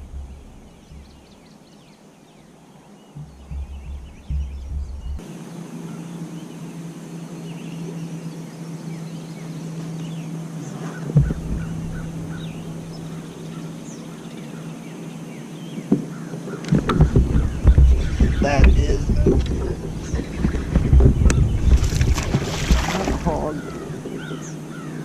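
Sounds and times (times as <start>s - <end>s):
sharp knock: 0.0s - 1.2s, 3.2s - 5.2s, 11.1s - 13.7s
steady low hum: 0.0s - 1.7s, 3.1s - 25.0s
bird calls: 0.0s - 25.0s.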